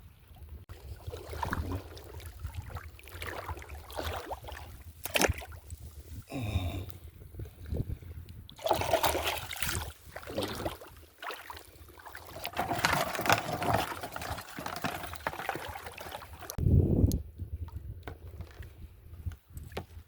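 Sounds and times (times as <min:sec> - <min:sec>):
seawater splashing and sloshing: 0:00.7 - 0:06.1, 0:08.6 - 0:16.6.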